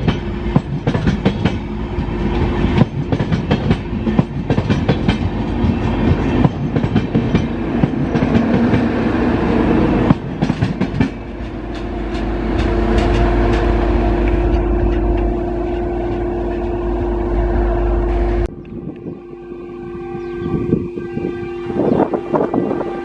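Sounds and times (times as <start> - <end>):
train wheels clattering over joints: 0.0 - 9.0, 10.0 - 16.9.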